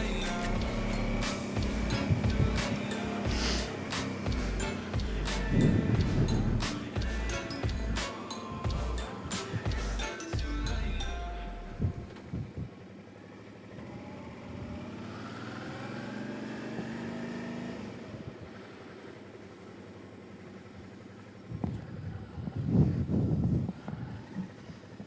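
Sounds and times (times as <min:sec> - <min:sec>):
motorcycle engine accelerating: 0:00.0 - 0:08.0, 0:12.2 - 0:25.0
wind noise on microphone: 0:21.5 - 0:24.5.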